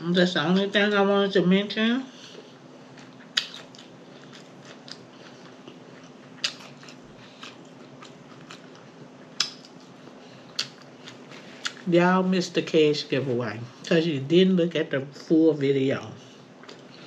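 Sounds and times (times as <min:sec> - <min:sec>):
faint steady hum: 0:00.0 - 0:17.0
chewing and lip smacking: 0:02.9 - 0:11.9, 0:16.6 - 0:17.0.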